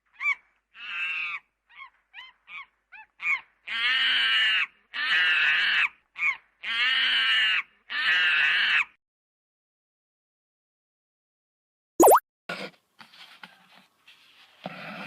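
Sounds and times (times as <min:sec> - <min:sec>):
monkey screaming: 0:03.2 - 0:08.9.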